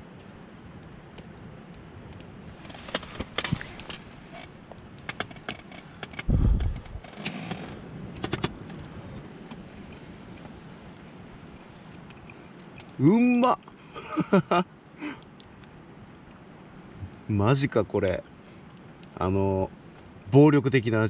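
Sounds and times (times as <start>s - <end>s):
low thump: 6.3s - 7.0s.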